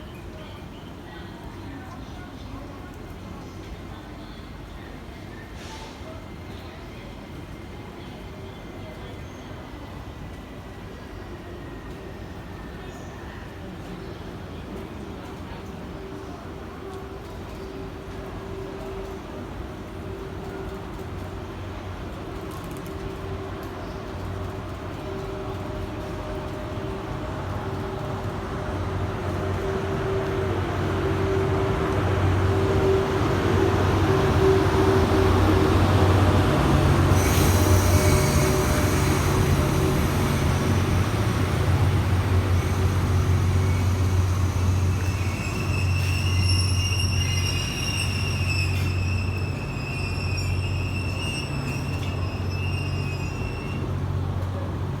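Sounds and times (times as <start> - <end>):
train humming: 16.3 - 55.0
high wavering brake squeal: 37.1 - 41.1, 42.6 - 54.0.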